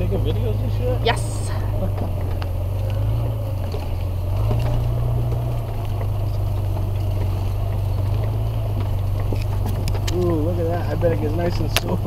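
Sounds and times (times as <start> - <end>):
engine and road drone: 0.0 - 12.0
light rattles and knocks: 0.0 - 12.0.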